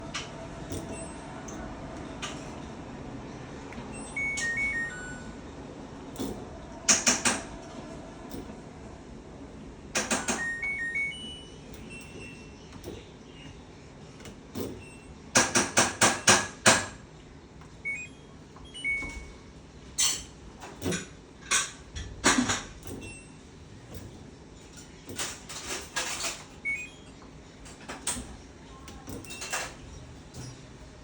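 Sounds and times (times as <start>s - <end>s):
short high electronic beeps: 3.9s - 5.3s, 10.4s - 11.6s
knocks on washing machine: 15.4s - 17.0s.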